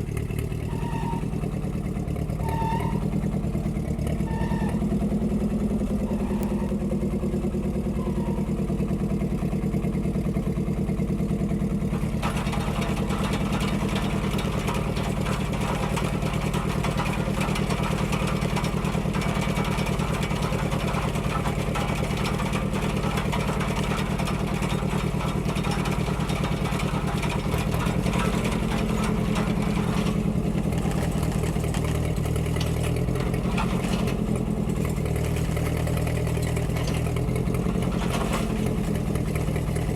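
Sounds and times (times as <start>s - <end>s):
tractor engine running: 0.0s - 39.9s
auger rattling: 11.4s - 39.9s.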